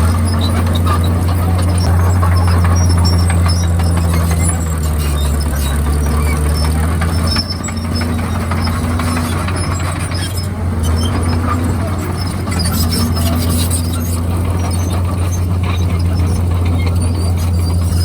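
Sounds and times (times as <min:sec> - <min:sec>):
bulldozer diesel engine droning: 0:00.0 - 0:18.0
short high squeaks: 0:00.0 - 0:18.0.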